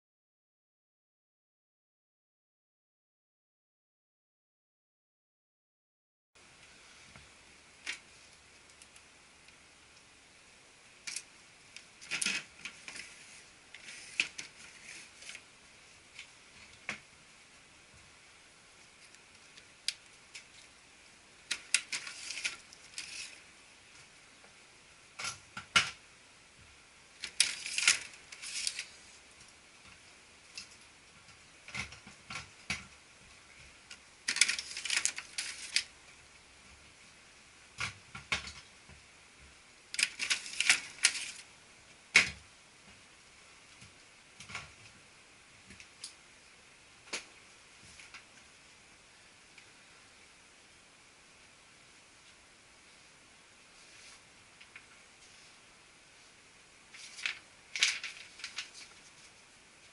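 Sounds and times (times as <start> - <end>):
plastic clicks and rattles: 12.0 - 13.1, 33.9 - 35.9.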